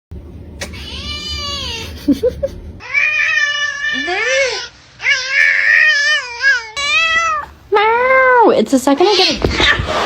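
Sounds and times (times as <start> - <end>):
cat meowing: 0.6 - 2.0, 2.8 - 7.5.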